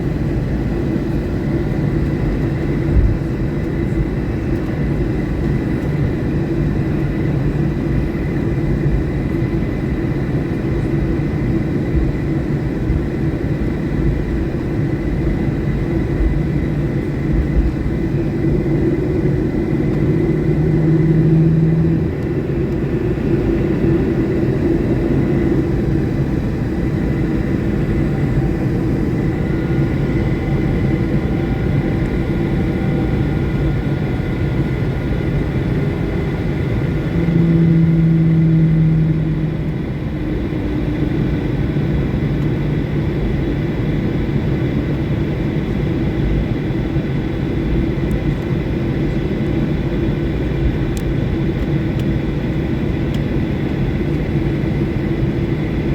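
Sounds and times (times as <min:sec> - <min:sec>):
faint engine whine: 0:00.0 - 0:55.9
jet engine cabin rumble: 0:00.0 - 0:55.9
low hum: 0:16.0 - 0:42.5.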